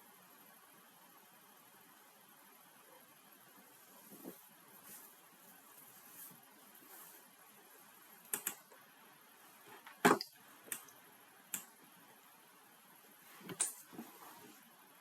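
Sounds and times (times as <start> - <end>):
faint room hiss: 0.0 - 15.0
keyboard and mouse clicks: 8.3 - 8.8, 9.8 - 11.7, 13.5 - 13.9.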